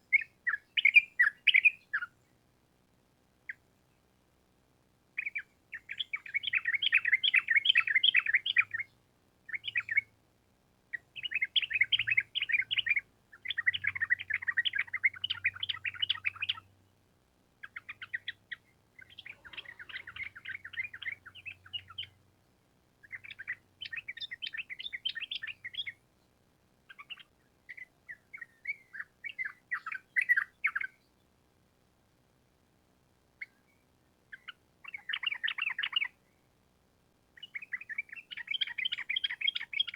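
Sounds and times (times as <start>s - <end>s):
bulbul chattering trills: 17.6s - 22.2s.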